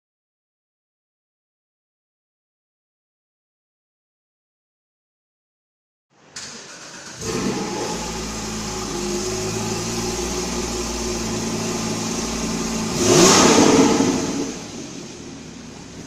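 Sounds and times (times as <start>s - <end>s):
car engine idling: 6.4s - 16.0s
engine revving: 6.7s - 16.0s.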